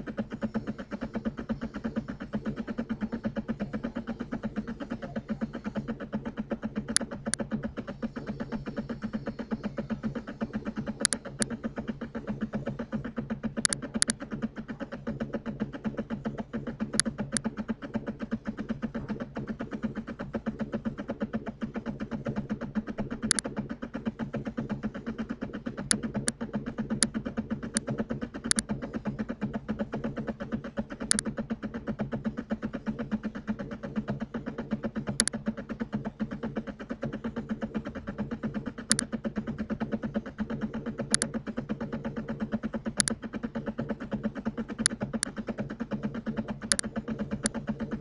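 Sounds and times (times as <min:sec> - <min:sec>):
low electrical hum: 0:00.0 - 0:48.0
computer mouse clicks: 0:06.9 - 0:07.5, 0:10.7 - 0:11.6, 0:13.6 - 0:14.3, 0:16.9 - 0:17.5, 0:23.2 - 0:23.6, 0:25.8 - 0:26.4, 0:27.0 - 0:28.7, 0:31.0 - 0:31.3, 0:35.1 - 0:35.4, 0:38.8 - 0:39.1, 0:41.0 - 0:41.4, 0:43.0 - 0:43.2, 0:44.7 - 0:45.5, 0:46.3 - 0:48.0.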